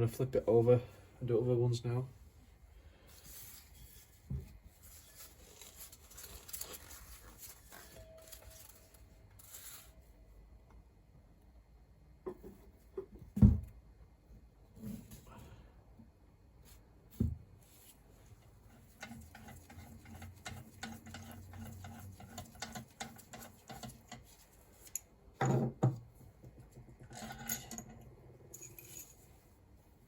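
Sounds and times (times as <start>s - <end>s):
metal tools clicking and clinking: 27.1s - 29.2s.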